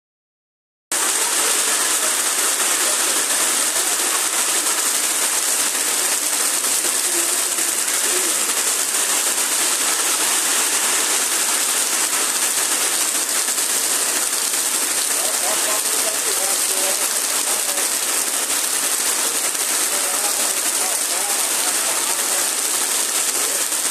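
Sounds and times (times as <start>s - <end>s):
heavy rain pouring: 0.9s - 23.9s.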